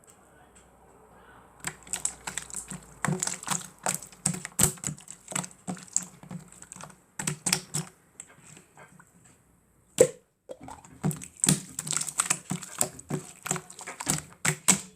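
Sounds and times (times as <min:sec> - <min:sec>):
slime clicking and popping: 0:01.6 - 0:07.9, 0:10.0 - 0:14.9.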